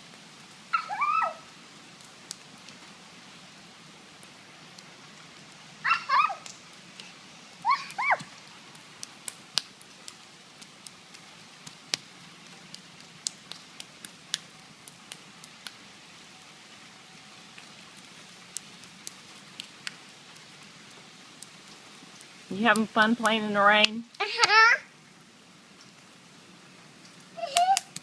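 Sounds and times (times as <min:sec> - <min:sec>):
faint steady hiss: 0:00.0 - 0:28.0
rain drops ticking: 0:00.0 - 0:28.0
short high cries: 0:00.7 - 0:01.5, 0:05.8 - 0:06.4, 0:07.6 - 0:08.3.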